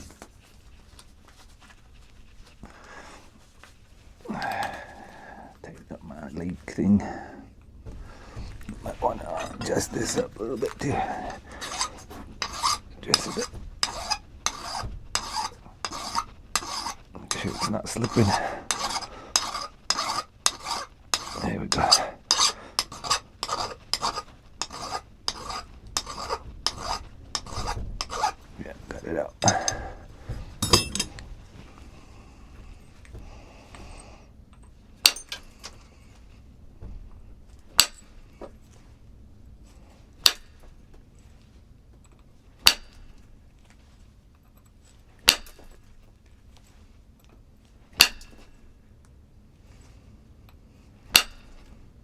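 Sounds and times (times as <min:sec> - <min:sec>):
tool scraping stone: 0:07.8 - 0:31.8
sharp ringing strikes on stone: 0:30.6 - 0:31.2.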